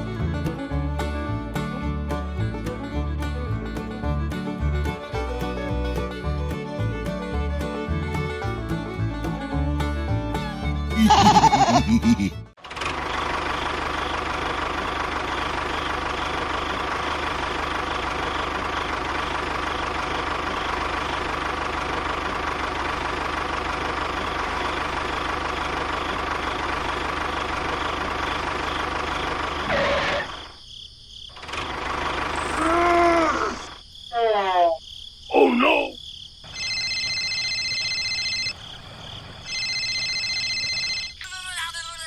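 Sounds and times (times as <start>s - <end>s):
engine running steadily: 0.0s - 30.5s, 31.4s - 32.8s.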